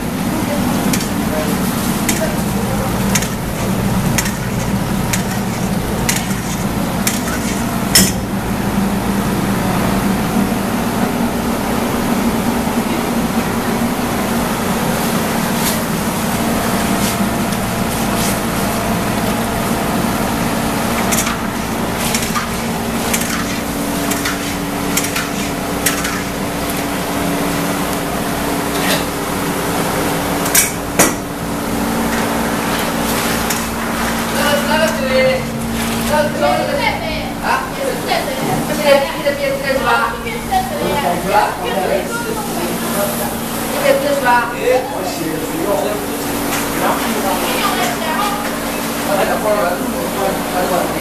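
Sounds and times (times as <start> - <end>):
steady low hum: 0.0 - 51.0
utensils and dishes clattering: 0.6 - 8.3, 20.9 - 27.0, 28.7 - 29.2.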